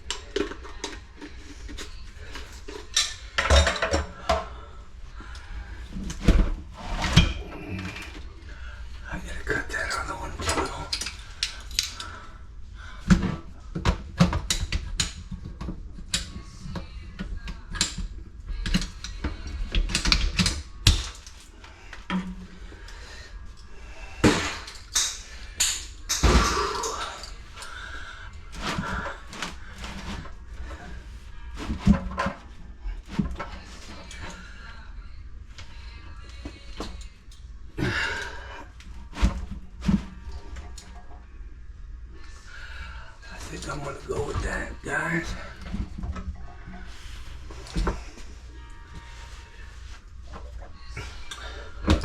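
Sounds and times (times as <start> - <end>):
hand tools and pipe clattering: 0.0 - 4.6, 18.6 - 34.6.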